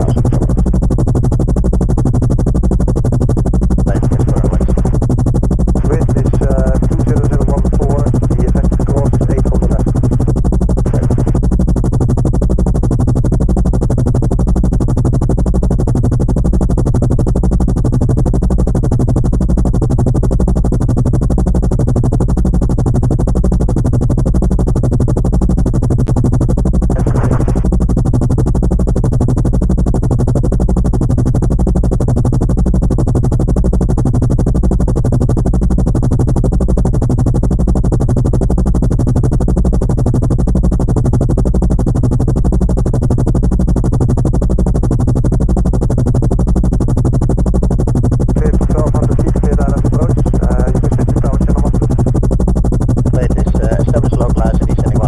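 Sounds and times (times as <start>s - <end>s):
aircraft engine sound: 0.0s - 0.9s, 3.9s - 5.0s, 5.8s - 11.4s, 26.9s - 27.7s, 48.4s - 52.2s, 53.1s - 55.0s
synthesized low drone: 0.0s - 0.9s, 3.9s - 5.1s, 5.8s - 11.4s, 26.9s - 27.7s, 48.4s - 52.2s.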